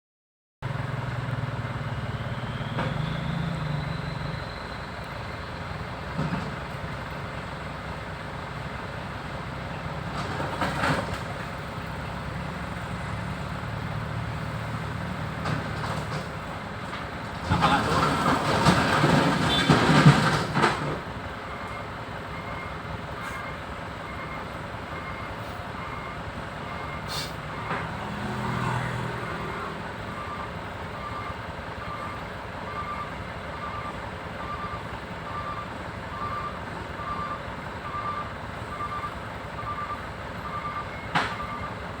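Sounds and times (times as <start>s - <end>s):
heavy vehicles running: 0.6s - 42.0s
reversing alarm beeping: 21.4s - 27.9s, 29.4s - 41.8s.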